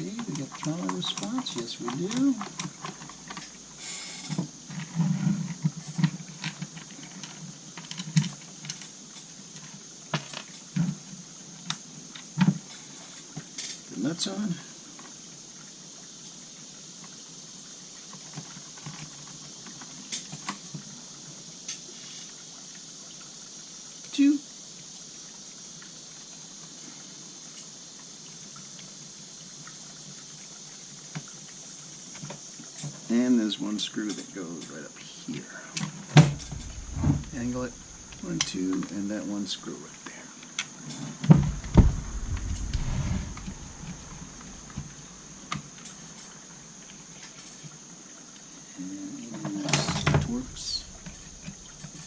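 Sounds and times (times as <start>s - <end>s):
small parts clicking and tapping: 0.0s - 10.9s
background hiss: 0.0s - 52.0s.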